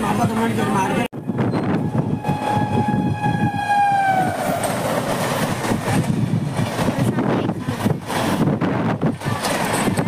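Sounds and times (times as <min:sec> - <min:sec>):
train wheels rumbling on rails: 0:00.0 - 0:10.0
train horn: 0:01.2 - 0:04.6.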